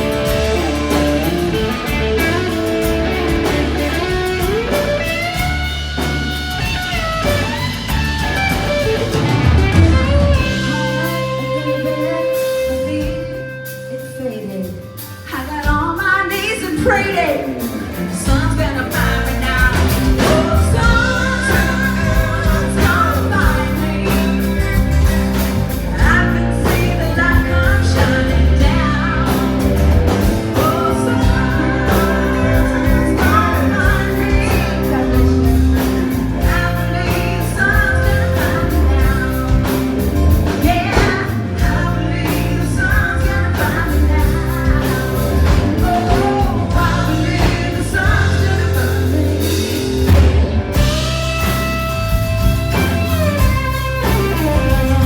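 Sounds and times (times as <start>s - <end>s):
live band playing: 0.0s - 55.0s
person singing: 9.7s - 24.9s, 25.8s - 51.4s.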